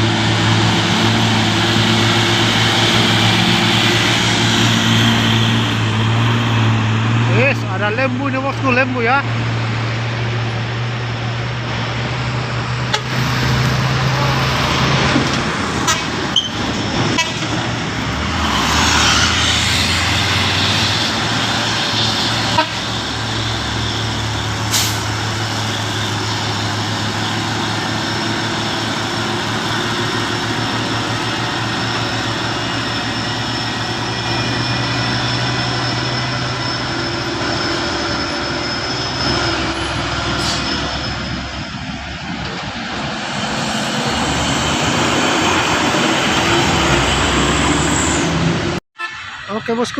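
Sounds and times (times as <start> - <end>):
diesel truck engine under load: 0.0 - 48.8
road noise: 0.0 - 49.9.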